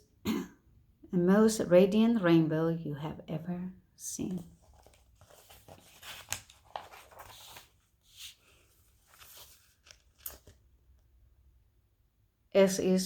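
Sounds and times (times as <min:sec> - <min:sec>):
paper rustling and crinkling: 0:04.3 - 0:10.6.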